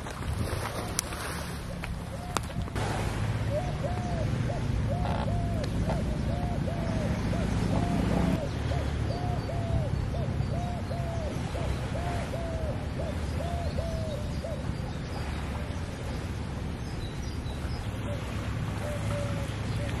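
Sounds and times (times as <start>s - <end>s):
bird hooting: 3.5s - 14.6s.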